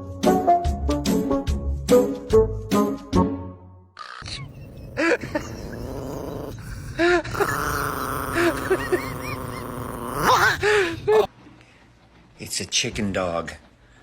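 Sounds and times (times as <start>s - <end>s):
animal yelping: 4.2s - 11.3s.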